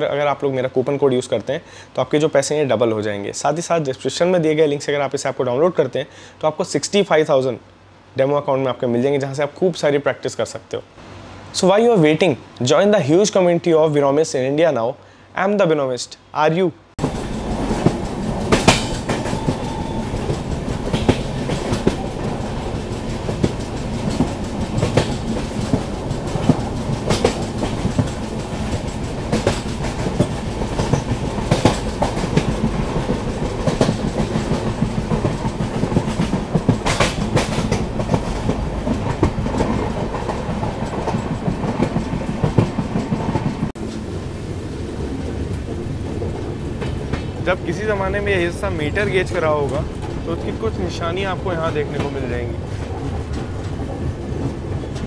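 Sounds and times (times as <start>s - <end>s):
wheel clacks over rail joints: 17.0s - 44.0s
train wheels rumbling on rails: 17.0s - 55.0s.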